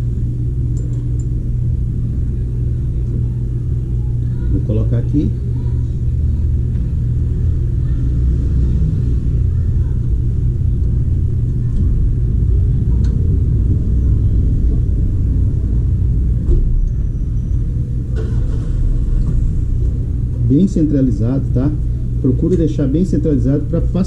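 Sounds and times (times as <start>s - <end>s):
low rumble: 5.2s - 24.0s.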